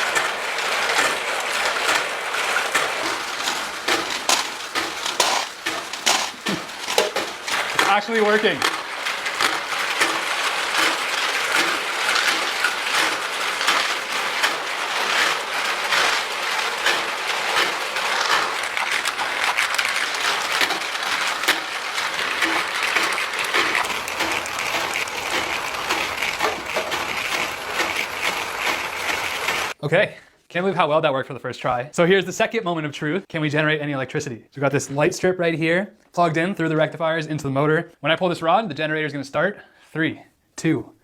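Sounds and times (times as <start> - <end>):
balls clattering in lift: 0.0 - 29.8.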